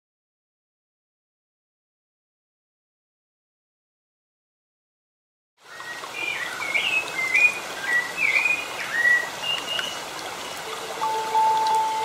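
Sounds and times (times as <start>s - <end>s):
birds whistled chirps: 5.7s - 10.0s
steady background hiss: 5.7s - 12.0s.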